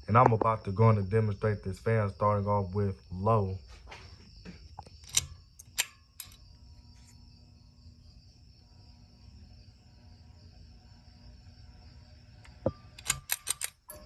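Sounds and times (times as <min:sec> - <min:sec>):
ceiling fan motor hum: 0:00.1 - 0:14.0
fan pull-chain clicks: 0:04.8 - 0:06.4, 0:12.4 - 0:14.0.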